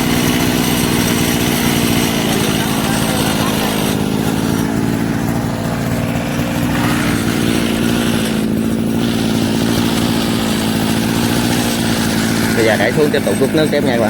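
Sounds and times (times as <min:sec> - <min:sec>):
small petrol engine running: 0:00.0 - 0:14.0.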